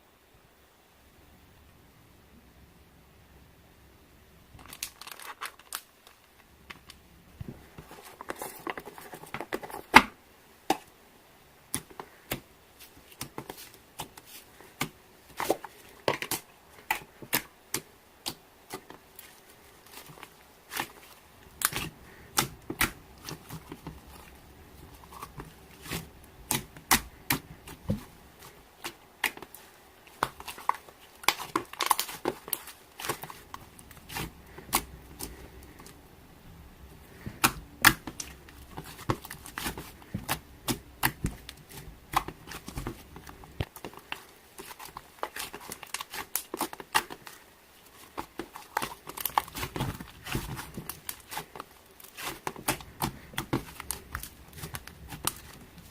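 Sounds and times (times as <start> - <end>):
slime squelching and popping: 13.1 - 36.0, 36.8 - 55.9.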